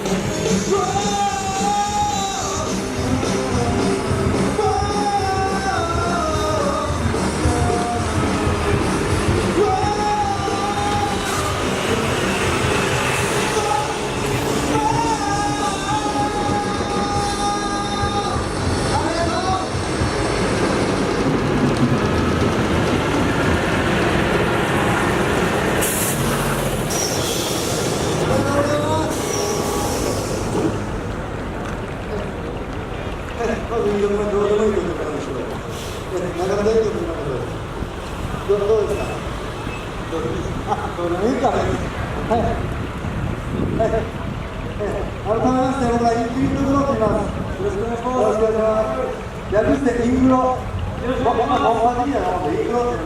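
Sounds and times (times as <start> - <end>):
rock band beat: 0.0 - 23.6
singer holding long notes: 0.0 - 31.5
heavy truck engines running: 0.0 - 53.0
air hiss: 25.7 - 28.3, 28.9 - 30.9, 35.7 - 36.2.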